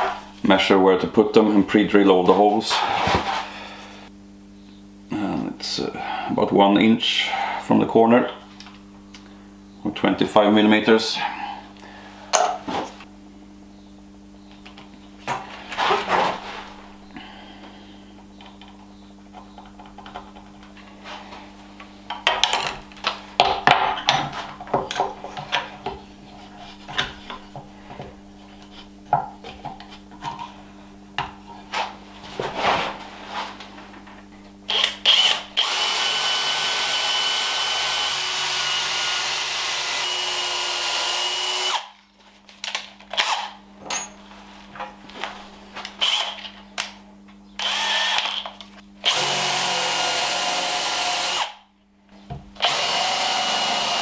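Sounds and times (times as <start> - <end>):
power drill running: 34.7 - 41.9, 47.6 - 48.4, 49.0 - 51.6, 52.6 - 54.0.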